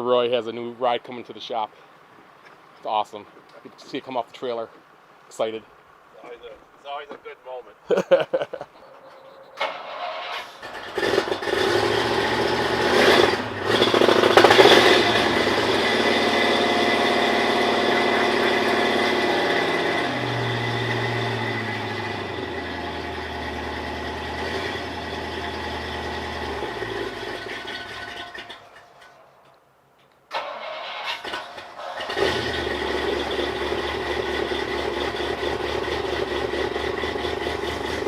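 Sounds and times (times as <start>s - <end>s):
engine running: 9.6s - 29.1s, 30.3s - 38.0s.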